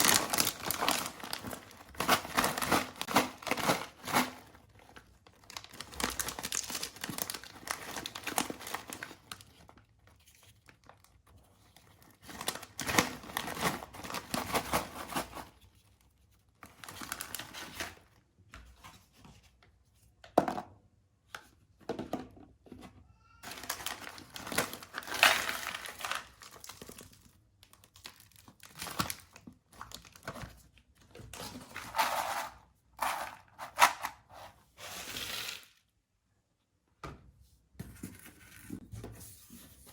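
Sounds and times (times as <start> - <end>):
plastic packets torn open: 0.0 - 9.7, 11.9 - 15.4, 16.6 - 18.0, 23.4 - 30.4
plastic packets crinkling: 0.0 - 9.8, 11.8 - 15.5, 16.6 - 18.0, 23.4 - 30.6.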